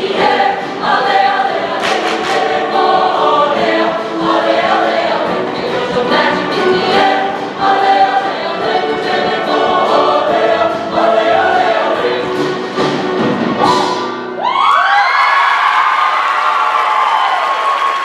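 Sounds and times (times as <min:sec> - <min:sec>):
choir singing: 0:00.0 - 0:13.8
audience applause and cheering: 0:13.8 - 0:18.0.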